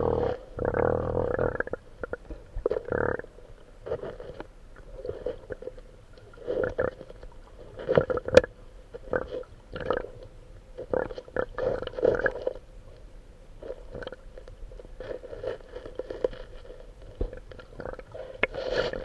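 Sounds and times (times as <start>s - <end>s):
animal making rough calls: 0.0s - 1.6s.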